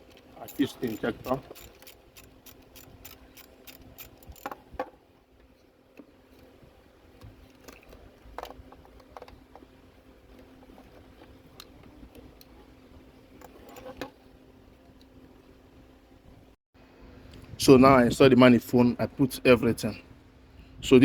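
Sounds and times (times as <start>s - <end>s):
metal parts and tools clicking: 0.0s - 4.7s.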